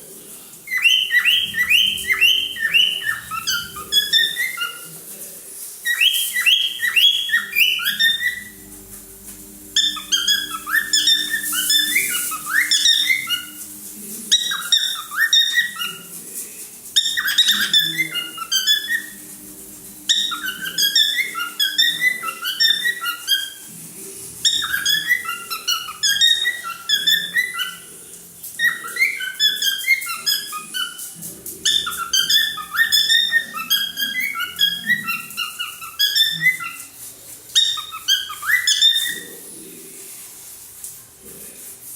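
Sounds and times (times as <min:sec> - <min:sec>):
cockatiel whistling chirps: 0:00.7 - 0:04.9, 0:05.8 - 0:08.6, 0:09.7 - 0:13.6, 0:14.3 - 0:16.1, 0:17.0 - 0:19.2, 0:20.1 - 0:23.7, 0:24.4 - 0:27.9, 0:28.6 - 0:36.9, 0:37.6 - 0:39.3.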